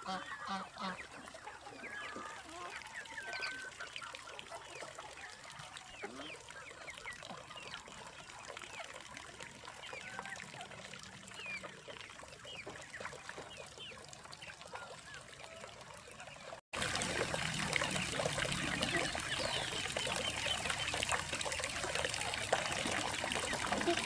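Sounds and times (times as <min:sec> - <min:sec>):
water trickling and pouring: 0:00.0 - 0:24.0
birds chirping: 0:17.5 - 0:24.0.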